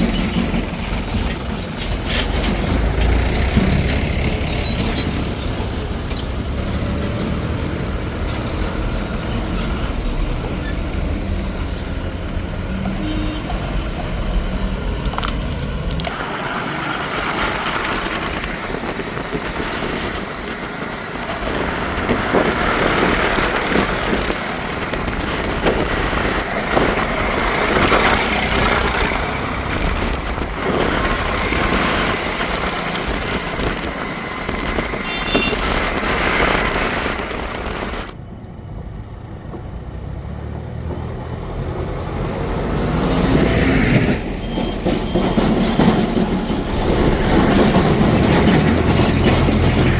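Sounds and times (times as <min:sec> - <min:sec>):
diesel engine running: 0:00.0 - 0:38.2.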